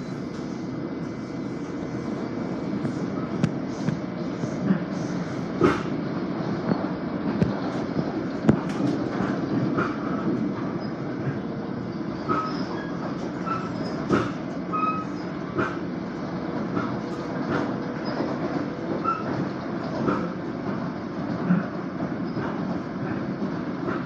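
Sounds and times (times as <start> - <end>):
train car rumble on rails: 0.0 - 24.0
short high squeals: 12.3 - 15.3.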